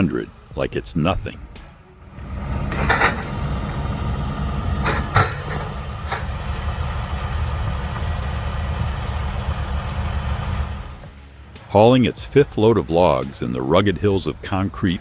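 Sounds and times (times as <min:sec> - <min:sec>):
diesel engine running under load: 0:01.4 - 0:11.1
sharp knocks: 0:04.8 - 0:06.4.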